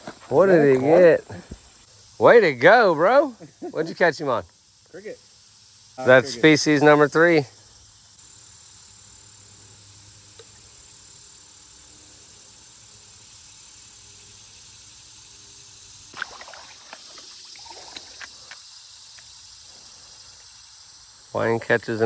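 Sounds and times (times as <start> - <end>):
crickets chirping: 0.0 - 22.0
irregular splashing: 16.1 - 18.6.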